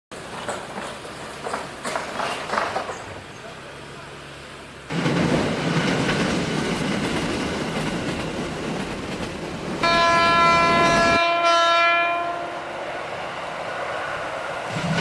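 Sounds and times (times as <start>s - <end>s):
train wheels rumbling on rails: 0.1s - 11.4s, 12.6s - 15.0s
train horn blast: 9.8s - 12.8s.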